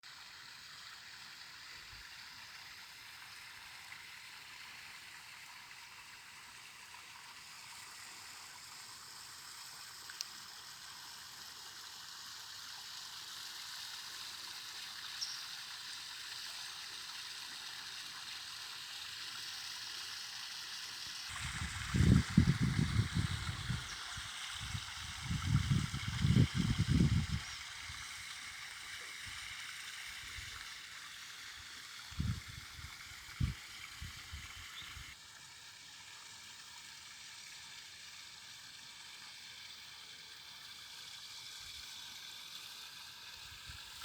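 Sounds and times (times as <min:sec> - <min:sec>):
steady rushing hiss: 0:20.9 - 0:35.2.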